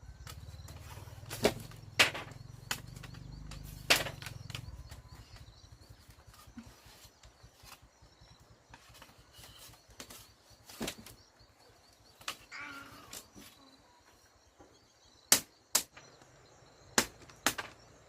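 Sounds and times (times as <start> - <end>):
sharp knocks: 1.3 - 3.1.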